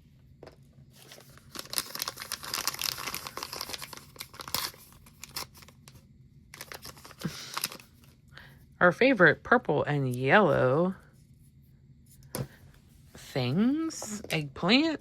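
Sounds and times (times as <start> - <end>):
plastic wrapping crinkling and tearing: 1.0 - 8.1.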